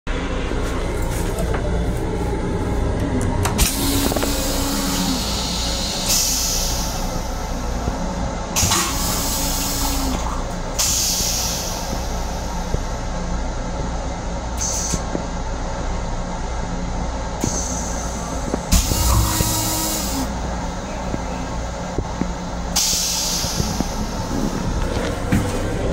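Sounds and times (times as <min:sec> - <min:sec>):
railcar rumbling: 0:00.1 - 0:25.9.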